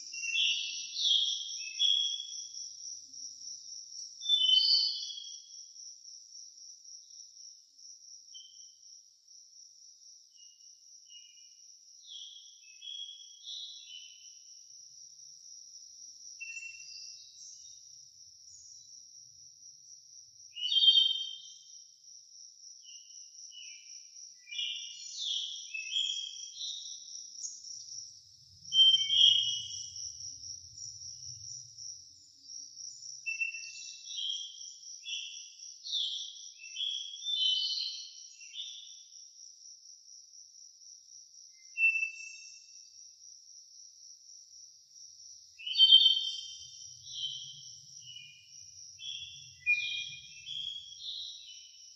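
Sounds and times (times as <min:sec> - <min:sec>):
birds singing chirps: 0:00.0 - 0:22.0, 0:22.6 - 0:39.5, 0:41.0 - 0:43.1, 0:44.5 - 0:51.9
pulsing insect trill: 0:22.8 - 0:37.3.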